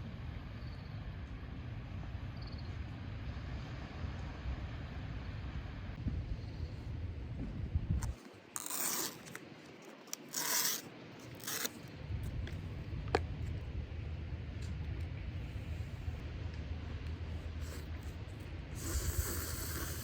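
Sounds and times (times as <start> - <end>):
low wind rumble: 0.0 - 8.3, 11.9 - 20.0
scraping rustling sounds: 8.0 - 11.9.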